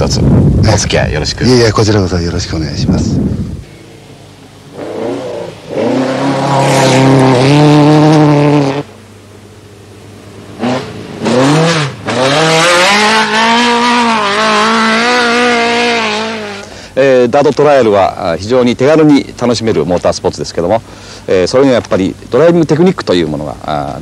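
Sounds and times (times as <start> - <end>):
car engines revving hard: 4.7 - 9.0, 10.4 - 16.9.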